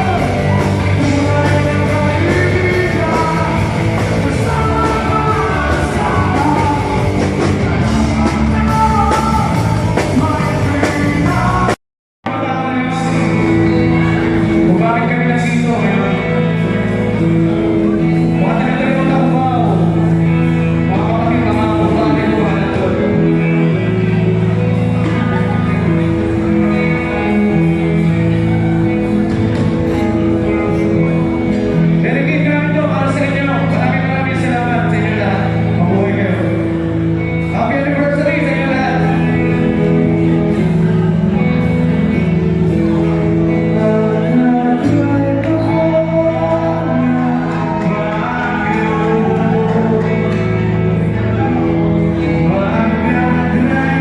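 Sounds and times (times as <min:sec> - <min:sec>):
person's voice over music: 0:00.0 - 0:27.8, 0:31.8 - 0:41.9
guitar-led music: 0:00.0 - 0:54.0
person singing through speakers: 0:00.0 - 0:54.0
rock band playing: 0:00.0 - 0:54.0.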